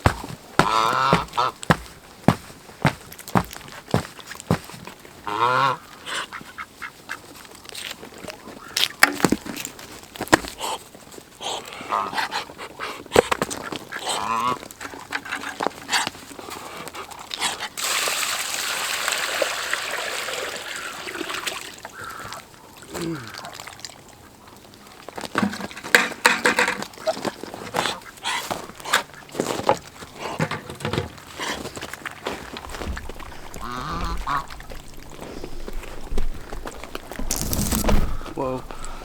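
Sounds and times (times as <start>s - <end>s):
ducks and geese honking and quacking: 0.6s - 1.6s, 5.2s - 7.4s, 13.6s - 14.6s, 33.6s - 34.7s.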